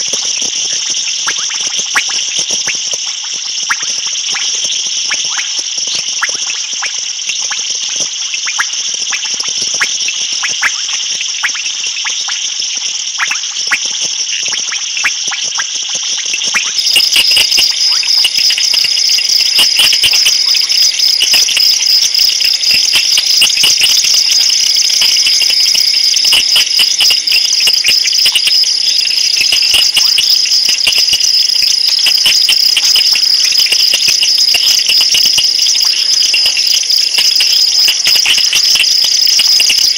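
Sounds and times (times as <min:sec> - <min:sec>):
insects trilling: 0:15.9 - 0:39.9
pulsing insect chorus: 0:16.7 - 0:39.9.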